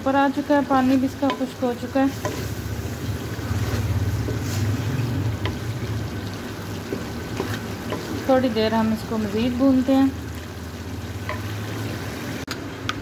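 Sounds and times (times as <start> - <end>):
meat sizzling in a pan: 0.0 - 12.5
wooden spoon scraping a pan: 0.6 - 9.0.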